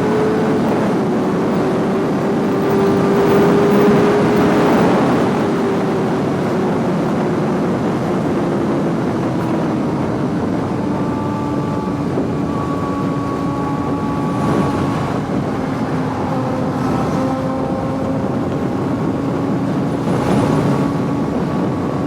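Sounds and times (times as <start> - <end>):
motorcycle engine cruising: 0.0 - 22.0
rush of riding noise: 0.0 - 22.0.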